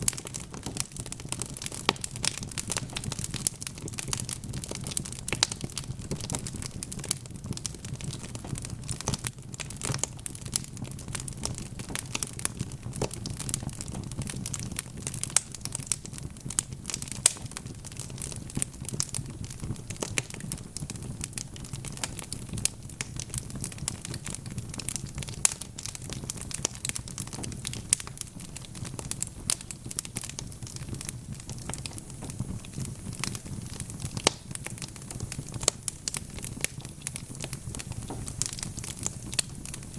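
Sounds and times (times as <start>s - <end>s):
logs crackling and popping: 0.0s - 39.9s
low rumble of flame: 0.0s - 39.9s.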